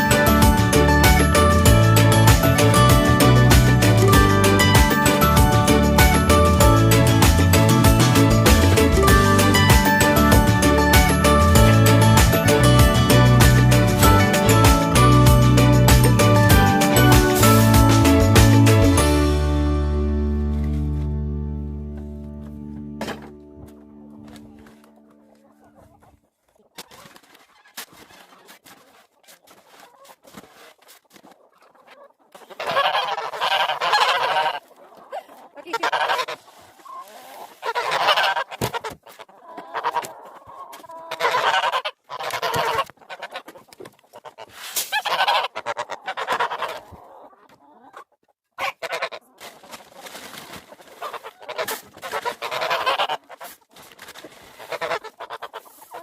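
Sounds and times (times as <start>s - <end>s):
geese honking loudly: 32.4s - 34.7s, 35.6s - 38.9s, 39.5s - 43.5s, 44.2s - 47.2s, 48.6s - 49.3s, 51.0s - 53.6s, 54.6s - 56.0s.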